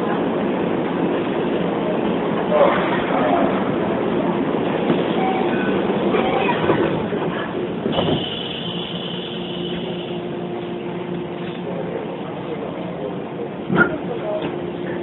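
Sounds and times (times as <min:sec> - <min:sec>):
train car rumble: 0:00.0 - 0:15.0.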